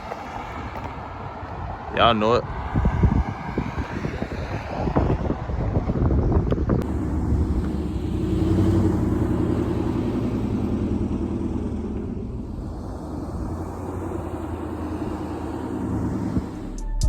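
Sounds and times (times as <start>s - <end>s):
car engine running: 6.7s - 16.8s.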